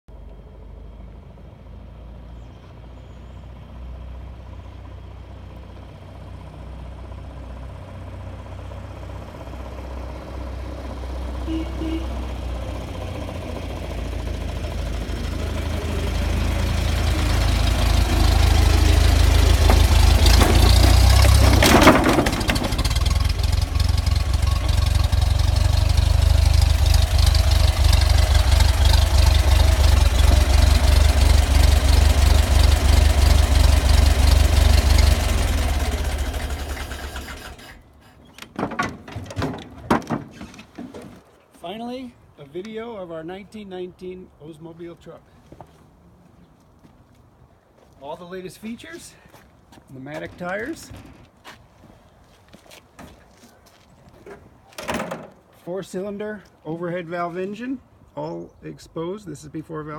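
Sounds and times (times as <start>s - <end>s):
truck engine running: 0.2s - 39.8s.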